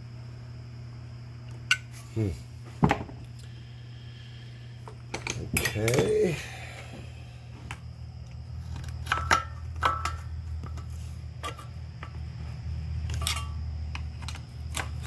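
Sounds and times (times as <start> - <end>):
steady low hum: 0.0 - 15.0
tools clinking on metal engine: 5.1 - 6.4, 13.0 - 15.0.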